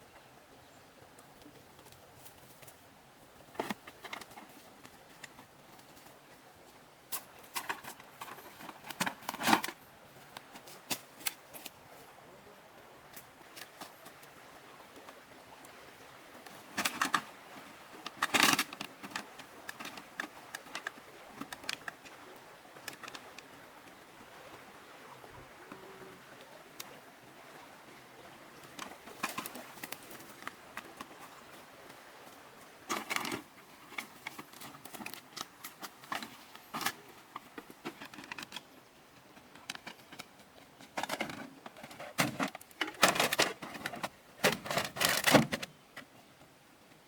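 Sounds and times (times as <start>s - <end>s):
objects being handled: 3.5s - 6.2s, 7.1s - 11.8s, 16.5s - 22.2s, 28.6s - 32.0s, 32.8s - 46.1s.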